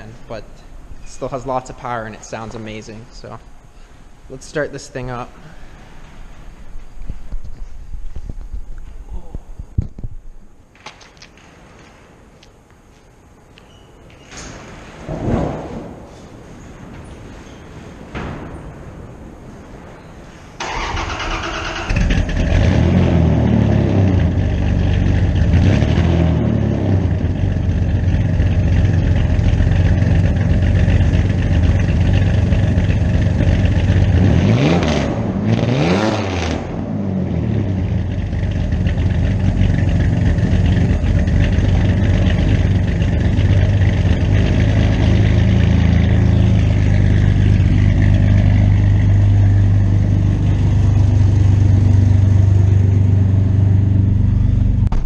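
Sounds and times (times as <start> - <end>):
engine cranking on starter: 20.6 - 22.9
truck engine revving and idling: 20.6 - 55.0.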